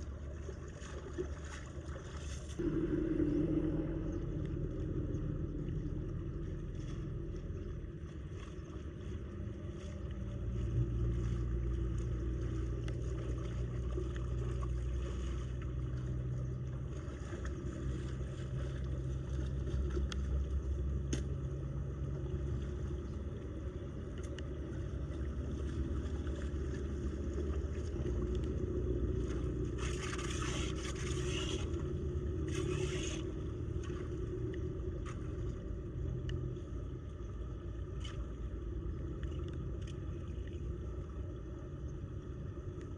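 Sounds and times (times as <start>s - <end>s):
faint scrapes: 32.4s - 33.4s.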